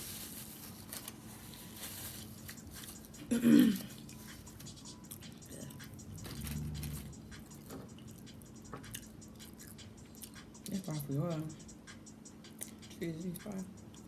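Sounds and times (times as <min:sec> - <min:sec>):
chewing a sandwich: 0:01.1 - 0:10.8.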